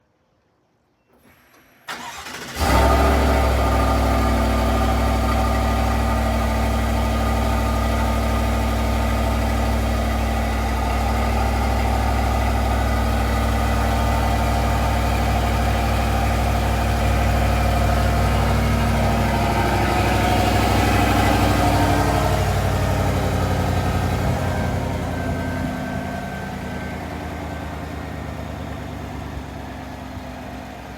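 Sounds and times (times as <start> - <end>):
engine cranking and starting: 1.2 - 7.8
engine idling loudly: 2.6 - 30.9.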